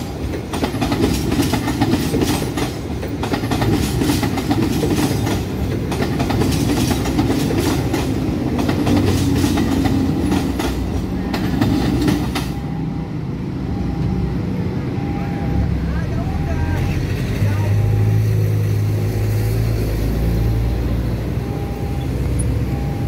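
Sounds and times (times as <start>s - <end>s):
train wheels clattering over rail joints: 0.0s - 12.6s
train rumble: 0.0s - 23.0s.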